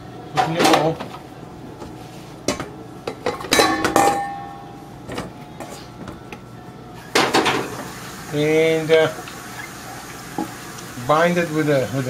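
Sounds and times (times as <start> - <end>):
utensils knocking against a bowl: 2.5 - 4.5.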